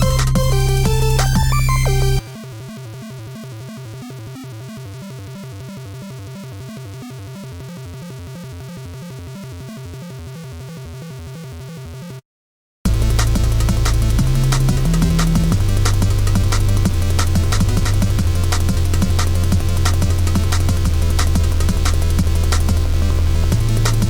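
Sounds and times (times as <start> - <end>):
bass-heavy electronic music: 0.0 - 2.6, 12.9 - 24.0.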